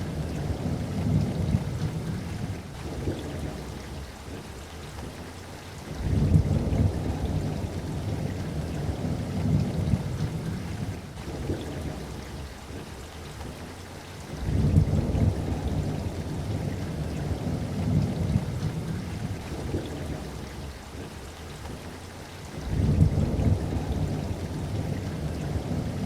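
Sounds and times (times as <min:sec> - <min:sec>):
rolling thunder: 0:00.0 - 0:04.1, 0:05.9 - 0:12.4, 0:14.4 - 0:20.6, 0:22.6 - 0:26.0
steady rain: 0:00.0 - 0:26.0.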